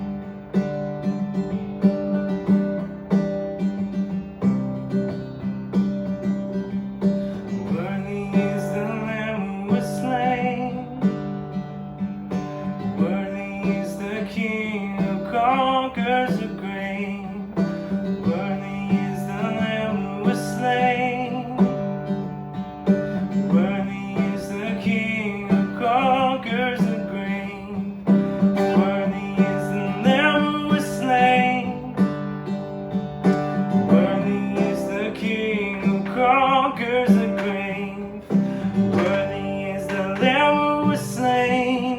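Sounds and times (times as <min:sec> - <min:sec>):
acoustic guitar strumming: 0:00.0 - 0:41.9
person singing: 0:07.4 - 0:11.1, 0:13.0 - 0:21.8, 0:23.1 - 0:32.1, 0:33.8 - 0:41.9.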